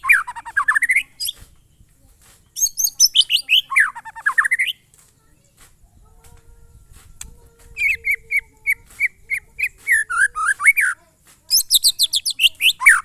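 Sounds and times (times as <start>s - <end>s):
shama whistled song: 7.8s - 11.0s.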